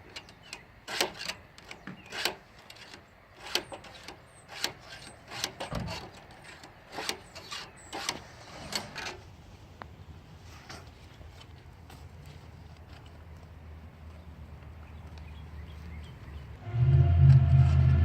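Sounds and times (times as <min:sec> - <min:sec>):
file scraping chainsaw chain: 0:00.9 - 0:09.1.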